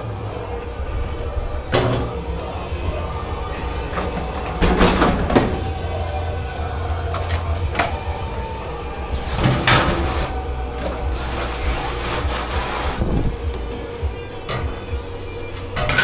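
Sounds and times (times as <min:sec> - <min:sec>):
low machine hum: 0:00.0 - 0:16.0
hissing rush: 0:08.0 - 0:13.5.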